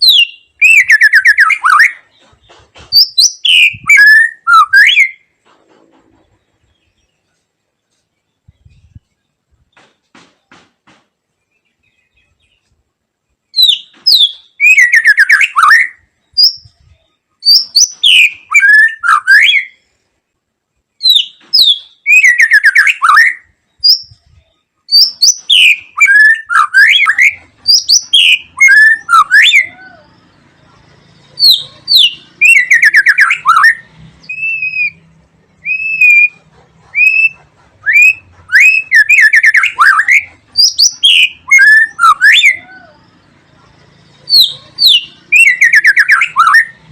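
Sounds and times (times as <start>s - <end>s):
bird singing rich whistles: 0.0s - 2.1s, 2.9s - 5.3s, 13.5s - 19.8s, 21.0s - 30.1s, 31.3s - 35.0s, 35.6s - 43.0s, 44.2s - 46.8s.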